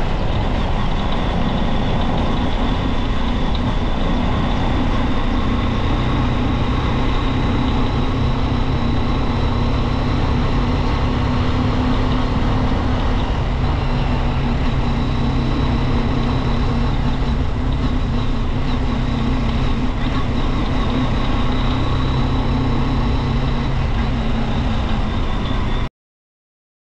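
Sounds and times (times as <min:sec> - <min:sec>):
motorcycle engine running steadily: 0:00.0 - 0:25.8.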